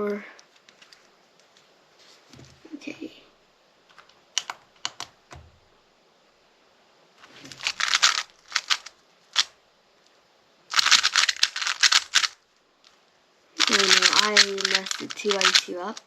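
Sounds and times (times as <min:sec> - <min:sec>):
plastic puzzle cube turning: 0:03.9 - 0:05.4, 0:07.2 - 0:09.5, 0:10.7 - 0:12.4, 0:13.6 - 0:16.0.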